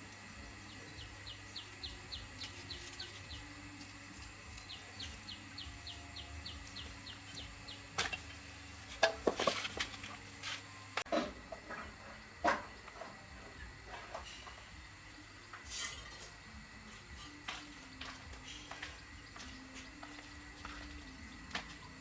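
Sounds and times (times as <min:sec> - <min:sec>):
small bird chirping: 0:00.6 - 0:03.6, 0:04.5 - 0:08.0.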